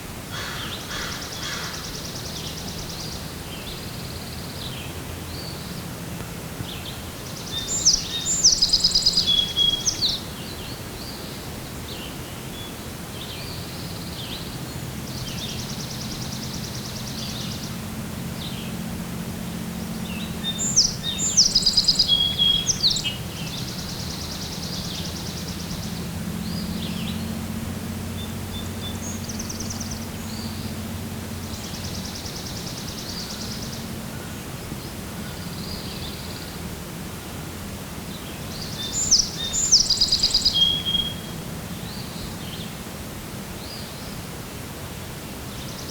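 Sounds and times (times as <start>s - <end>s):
songbirds singing: 0.0s - 45.9s.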